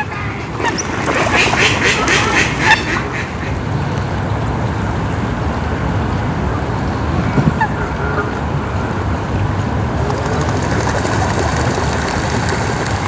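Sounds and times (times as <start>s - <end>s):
waterfowl honking: 0.0s - 4.4s, 7.2s - 9.3s.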